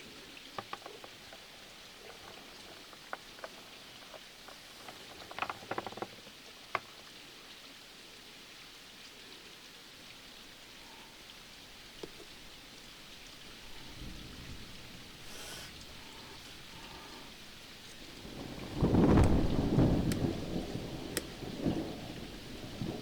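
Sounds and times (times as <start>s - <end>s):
steady rain hiss: 0.0s - 23.0s
small sharp clicks and taps: 19.2s - 20.4s.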